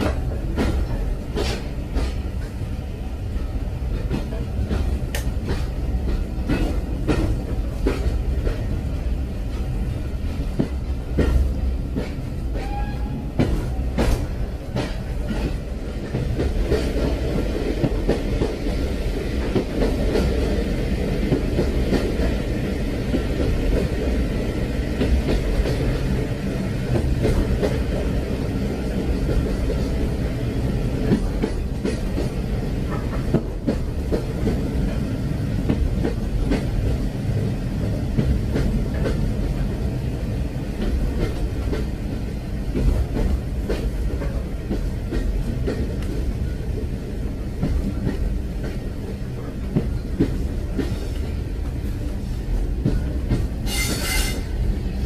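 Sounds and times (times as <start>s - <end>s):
train rumble: 0.0s - 55.0s.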